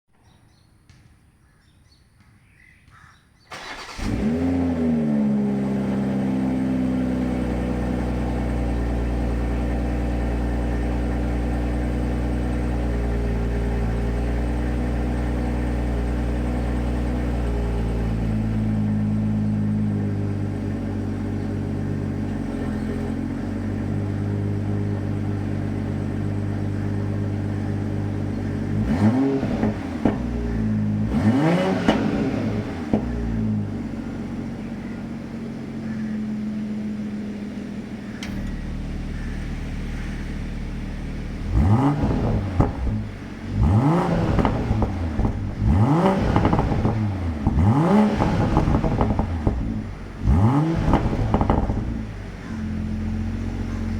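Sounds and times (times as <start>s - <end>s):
car engine idling: 3.0s - 53.9s
car starter motor: 3.5s - 6.5s, 37.8s - 50.2s
engine revving: 3.5s - 53.9s.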